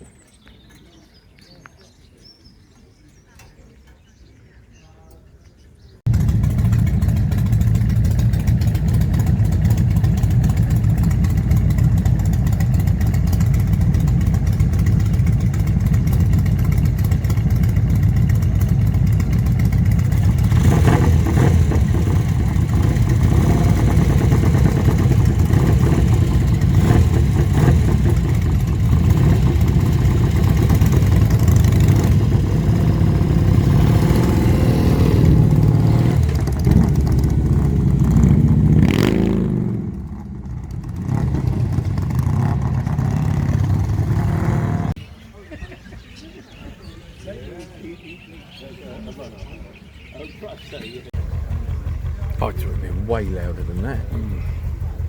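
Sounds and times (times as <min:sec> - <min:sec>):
motorcycle engine running: 0:06.1 - 0:45.0, 0:51.1 - 0:55.0.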